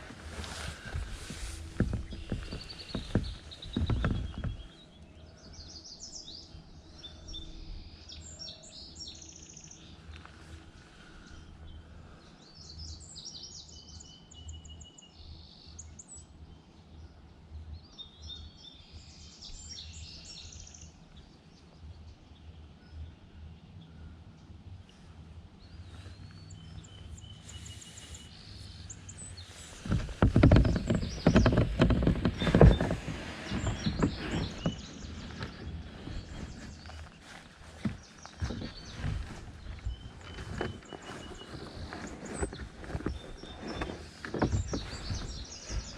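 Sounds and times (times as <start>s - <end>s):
songbirds singing trilled phrases: 33.5s - 45.9s.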